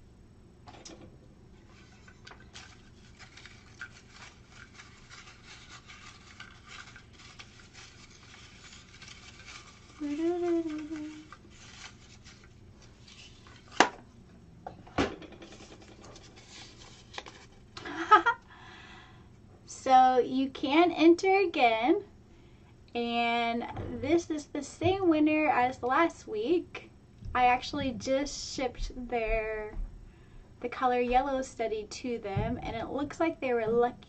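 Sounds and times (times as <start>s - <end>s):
hands rustling slips of paper: 1.6s - 13.9s, 16.1s - 17.8s
person humming: 10.0s - 11.4s.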